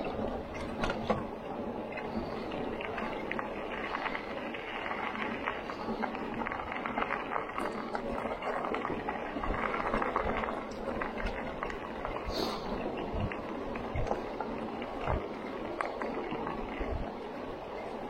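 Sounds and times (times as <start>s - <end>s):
bike clicks and knocks: 0.0s - 11.9s
tyres crunching on gravel: 0.0s - 16.8s.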